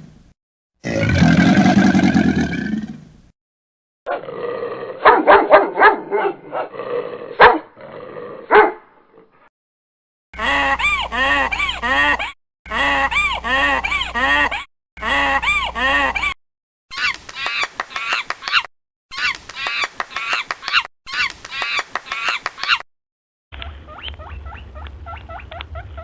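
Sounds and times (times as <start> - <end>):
dog barking: 5.0 - 6.7, 7.4 - 7.7, 8.5 - 8.8
animal rapid repeated calls: 16.9 - 22.8, 23.6 - 26.0.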